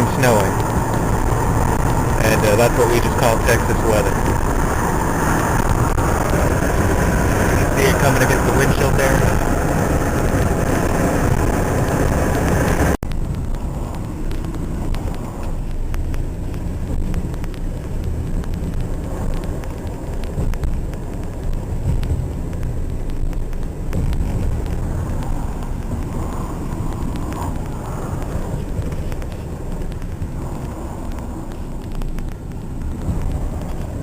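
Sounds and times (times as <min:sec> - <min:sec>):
gusty wind buffeting microphone: 0:00.0 - 0:34.0
in-car noise: 0:00.0 - 0:34.0
faint ticks: 0:13.1 - 0:34.0.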